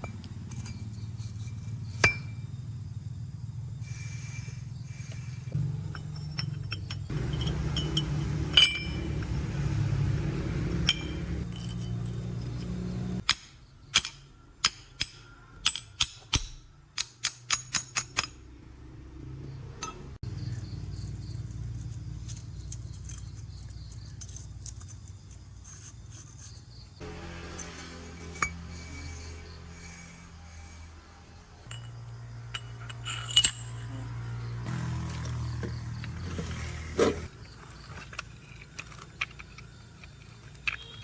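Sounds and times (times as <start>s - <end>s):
low hum: 5.0s - 13.2s, 27.0s - 35.4s
metal tools clinking: 5.1s - 18.4s, 19.8s - 20.1s, 27.0s - 41.0s.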